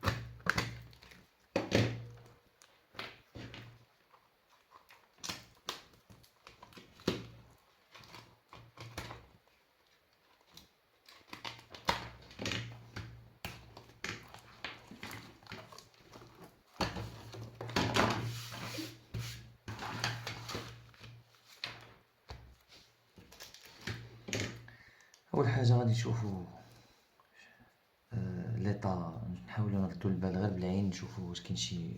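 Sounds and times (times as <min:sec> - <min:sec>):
objects handled on a workbench: 0:10.4 - 0:25.3.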